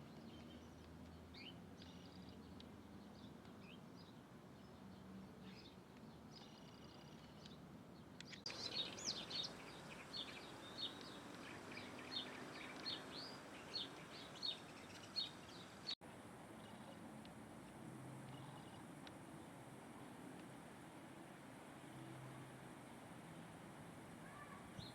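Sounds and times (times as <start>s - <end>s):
birds chirping: 0.0s - 16.0s
steady background hiss: 5.4s - 24.9s.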